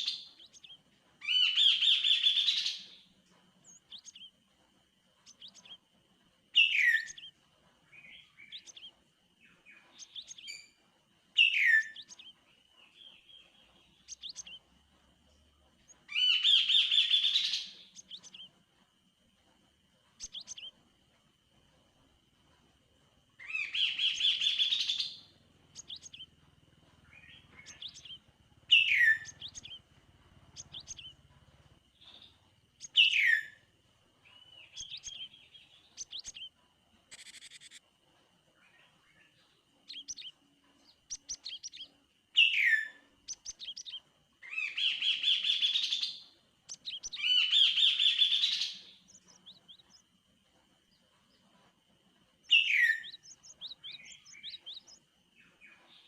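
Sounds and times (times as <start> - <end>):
faint steady high tone: 0.0 - 44.8
bird chattering and whistling: 23.4 - 26.3, 27.2 - 29.8, 30.5 - 31.2, 37.1 - 37.8.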